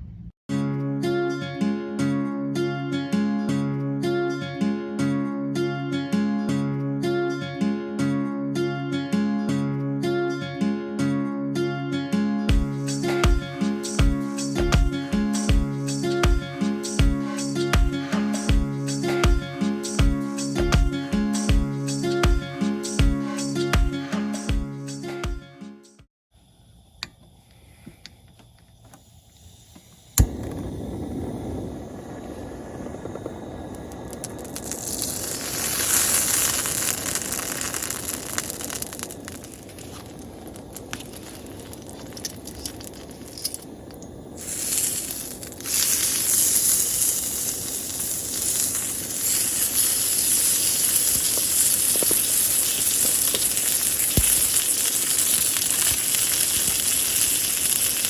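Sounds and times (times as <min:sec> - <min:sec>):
gas burner rushing: 0:26.5 - 0:58.0
food sizzling in a pan: 0:30.2 - 0:58.0.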